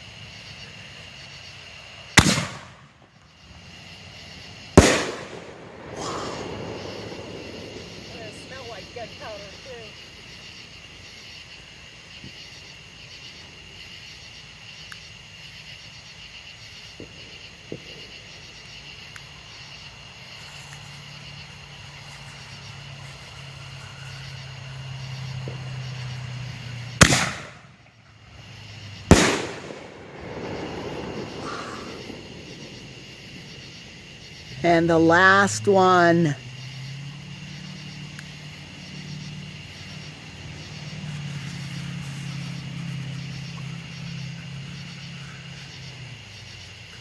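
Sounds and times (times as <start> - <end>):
insects chirring: 0.0 - 47.0
firework bangs: 2.0 - 3.2, 4.5 - 9.9, 25.4 - 28.0, 29.0 - 34.4.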